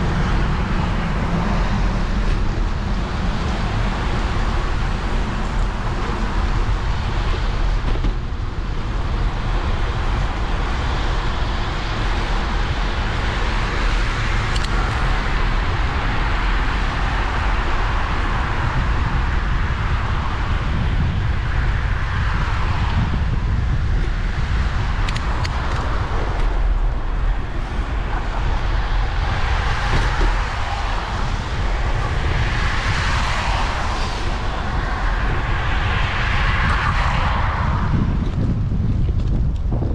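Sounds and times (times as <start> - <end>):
wind rumble on microphone: 0.0 - 39.9
bicycle tyres hissing on wet pavement: 29.4 - 37.8.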